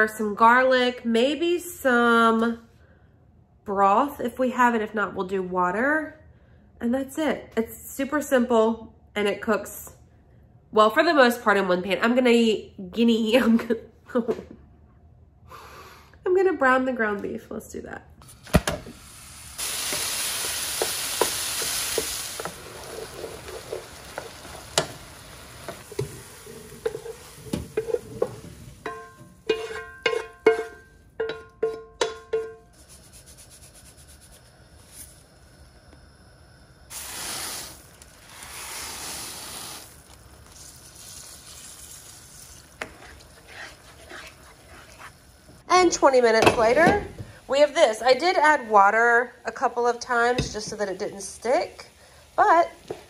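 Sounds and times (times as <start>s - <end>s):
meat sizzling in a frying pan: 18.9s - 28.8s, 36.9s - 43.4s, 49.6s - 53.0s
wooden spoon stirring and scraping: 20.4s - 32.2s, 40.1s - 48.9s.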